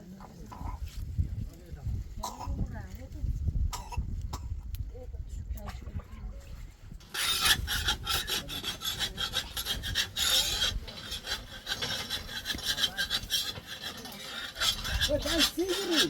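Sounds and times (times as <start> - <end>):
rasping scraping strokes: 7.0 - 16.0.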